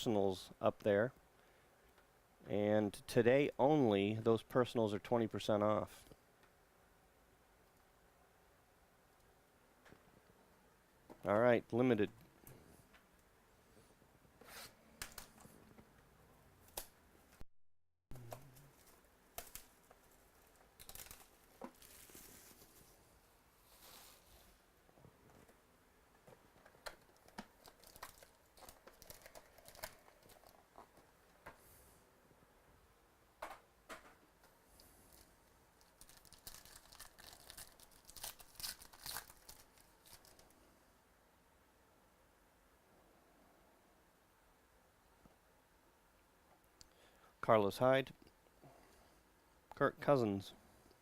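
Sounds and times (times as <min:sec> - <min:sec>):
packaging and cards clicking: 0:18.2 - 0:22.2, 0:26.5 - 0:31.1, 0:35.2 - 0:40.5
wrapper tearing and crinkling: 0:18.6 - 0:22.7, 0:27.1 - 0:30.7, 0:35.1 - 0:40.5.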